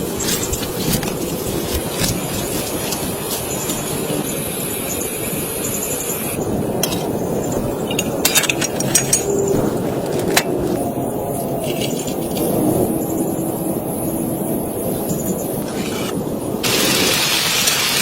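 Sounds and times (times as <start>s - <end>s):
rain on a tent: 16.2s - 18.0s.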